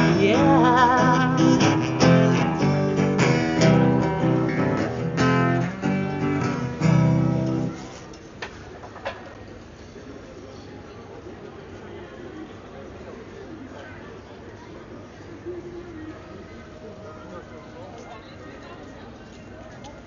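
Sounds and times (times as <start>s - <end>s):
person singing: 0.0s - 3.0s
acoustic guitar strumming: 0.0s - 8.0s
street background noise: 0.0s - 20.0s.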